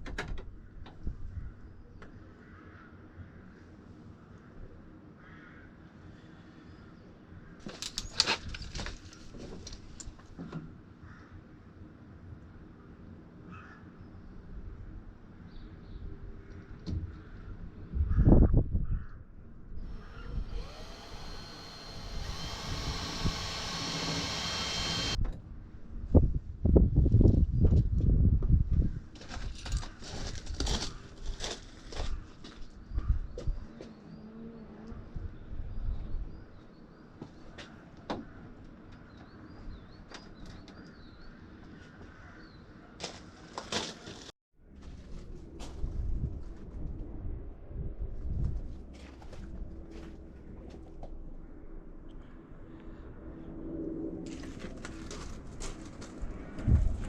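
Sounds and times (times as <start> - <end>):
small electric motor whirring: 19.8 - 25.2.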